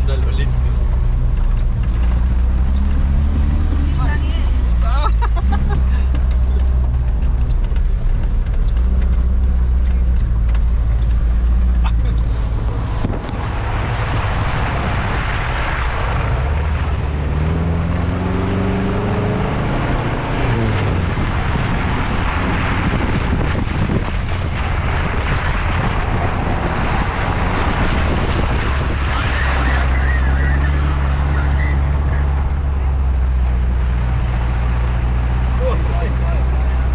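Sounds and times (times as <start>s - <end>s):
car engine revving under load: 0.0s - 36.9s
water rushing: 0.0s - 36.9s
wind rushing: 12.4s - 30.2s.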